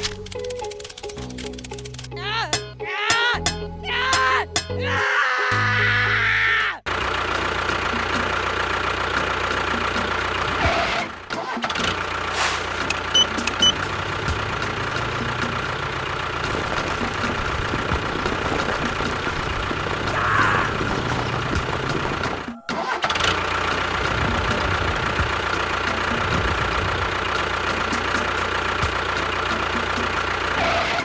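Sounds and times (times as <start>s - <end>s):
engine running steadily: 6.9s - 31.0s.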